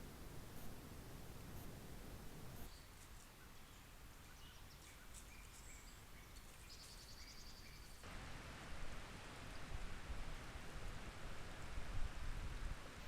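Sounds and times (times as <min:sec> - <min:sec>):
steady hiss: 0:00.0 - 0:03.3.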